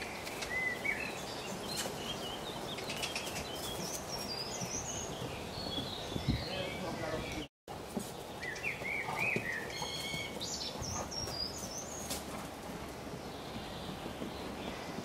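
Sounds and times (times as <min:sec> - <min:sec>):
outdoor background hiss: 0:00.0 - 0:15.0
small birds singing: 0:00.0 - 0:15.0.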